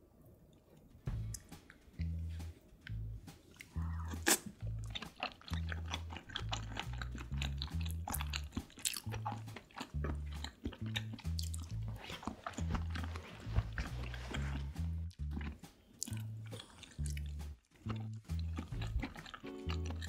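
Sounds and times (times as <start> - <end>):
chewing and wet mouth sounds: 0.5 - 20.0
background music with bass line: 1.1 - 20.0.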